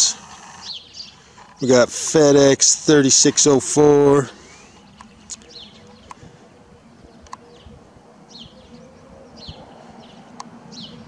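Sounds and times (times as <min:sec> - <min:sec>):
small bird chirping: 0:00.1 - 0:01.3.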